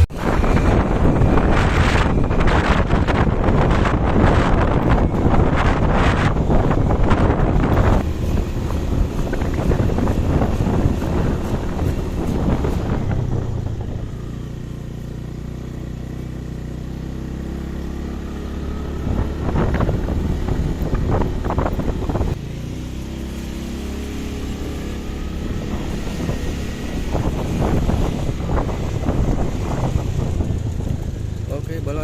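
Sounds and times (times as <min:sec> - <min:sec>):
wind across microphone: 0:00.0 - 0:15.3, 0:17.7 - 0:32.0
rough traffic noise: 0:00.0 - 0:32.0
vehicle engine running: 0:00.0 - 0:32.0.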